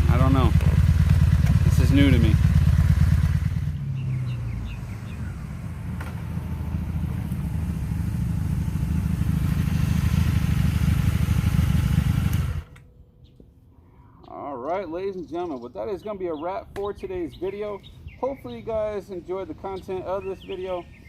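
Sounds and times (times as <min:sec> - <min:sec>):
motorcycle engine running: 0:00.0 - 0:12.8.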